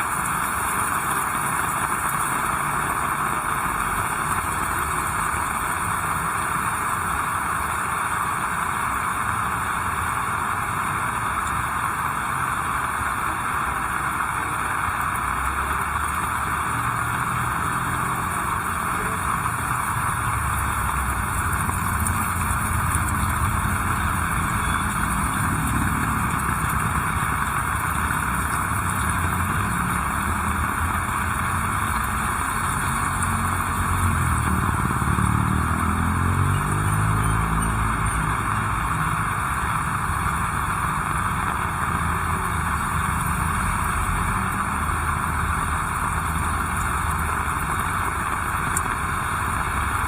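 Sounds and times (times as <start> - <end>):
heavy rain: 0.0 - 50.0
vehicle engine passing: 16.4 - 50.0.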